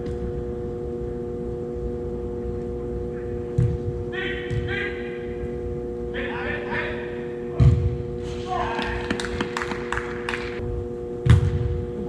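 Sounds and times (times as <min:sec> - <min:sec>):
steady indoor hum: 0:00.0 - 0:12.0
person shouting: 0:08.4 - 0:09.1.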